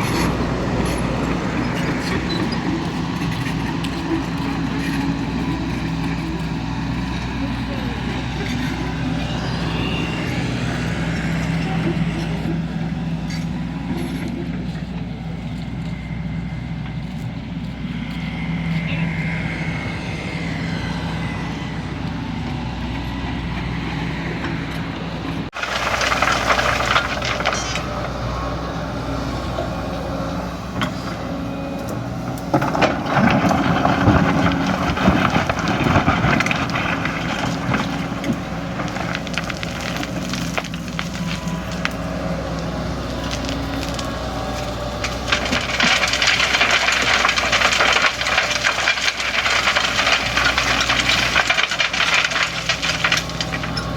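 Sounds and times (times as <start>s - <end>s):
excavator diesel engine running: 0.0s - 53.9s
crunching and cracking: 25.5s - 28.7s, 31.9s - 53.9s.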